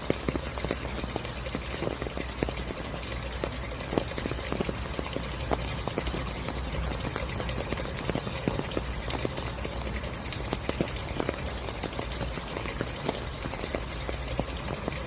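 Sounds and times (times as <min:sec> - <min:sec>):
raindrops tapping: 0:00.0 - 0:15.0
steady rain hissing: 0:00.0 - 0:15.0.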